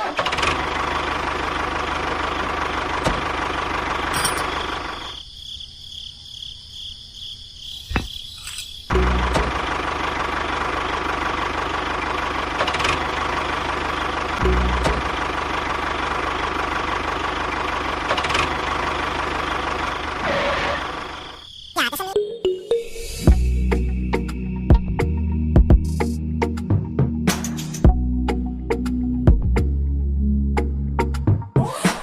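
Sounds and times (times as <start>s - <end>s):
model tractor engine running: 0.0s - 5.1s, 9.0s - 21.4s.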